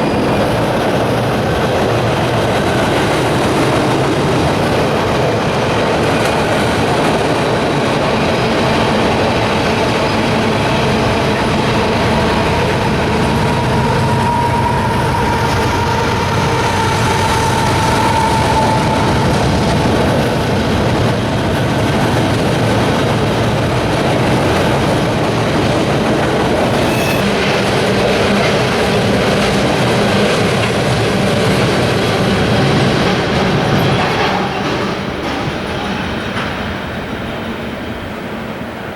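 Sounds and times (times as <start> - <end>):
train wheels clattering on rails: 0.0 - 38.9
wheel squeal: 10.1 - 20.6, 26.6 - 29.4.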